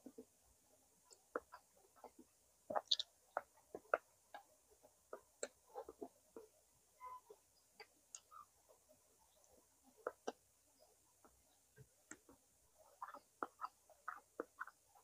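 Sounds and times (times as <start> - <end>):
wet chewing clicks and smacks: 1.1 - 4.5.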